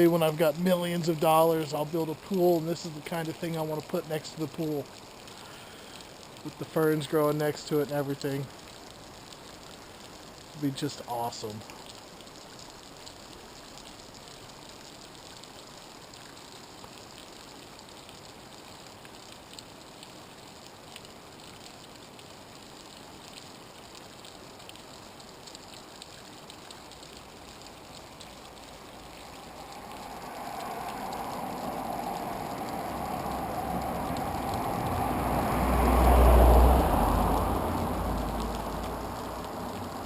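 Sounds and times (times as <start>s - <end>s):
water drips: 0.0s - 40.0s
waterfall splashing on rocks: 0.0s - 40.0s
hum: 27.5s - 35.7s.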